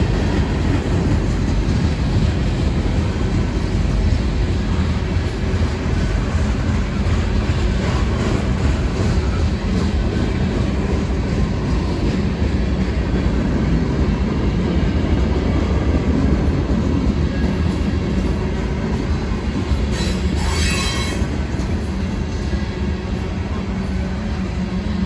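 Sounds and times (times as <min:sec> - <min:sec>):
train wheels rumbling on rail: 0:00.0 - 0:25.0
wheel squealing on rail: 0:19.2 - 0:22.9.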